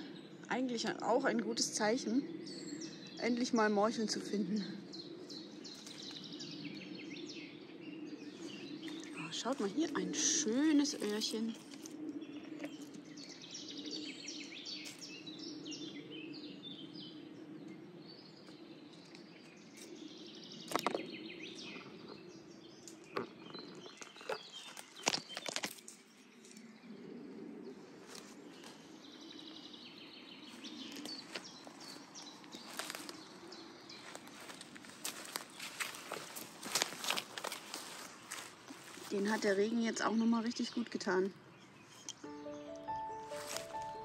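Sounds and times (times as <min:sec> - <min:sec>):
songbirds chirping: 0:00.0 - 0:44.0
snaps and clicks in undergrowth: 0:05.7 - 0:06.2, 0:08.4 - 0:13.1, 0:14.8 - 0:15.2, 0:18.4 - 0:20.0, 0:20.6 - 0:21.9, 0:22.8 - 0:26.7, 0:30.8 - 0:39.7.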